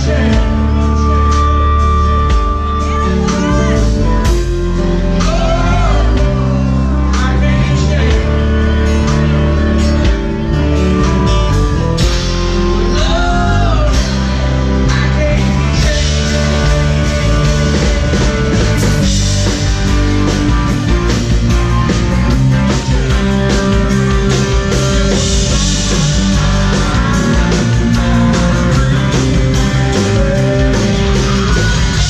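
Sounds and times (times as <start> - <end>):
person singing: 0.0 - 9.2, 12.7 - 19.1, 28.0 - 32.0
electric guitar: 0.0 - 32.0
rock band playing: 0.0 - 32.0.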